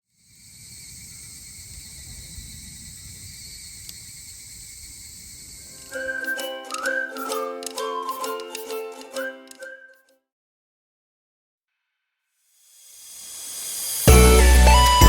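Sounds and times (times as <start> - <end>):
crickets chirring: 0.1 - 7.4
plucked ukulele music: 5.8 - 10.0, 14.1 - 15.0.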